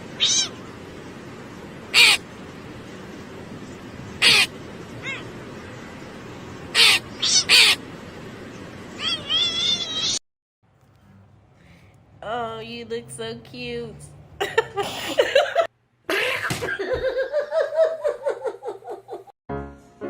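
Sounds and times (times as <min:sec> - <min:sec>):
pet animal calling: 0:00.2 - 0:00.6, 0:01.9 - 0:02.2, 0:04.2 - 0:05.9, 0:06.7 - 0:07.8, 0:09.0 - 0:10.2.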